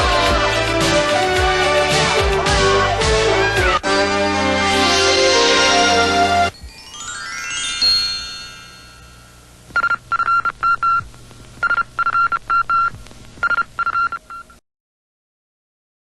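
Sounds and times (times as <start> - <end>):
short electronic beeps: 9.8 - 11.0.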